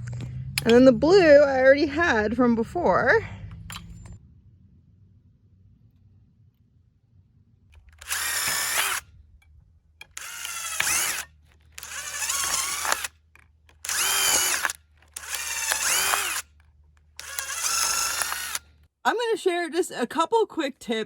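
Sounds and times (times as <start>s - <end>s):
power drill motor whine: 7.8s - 9.1s, 10.0s - 18.7s.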